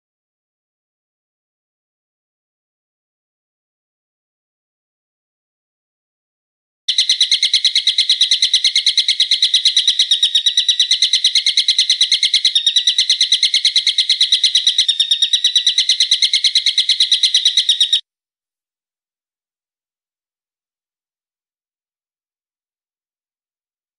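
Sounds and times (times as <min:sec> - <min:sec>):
bird calling sharp high notes: 0:06.9 - 0:18.0.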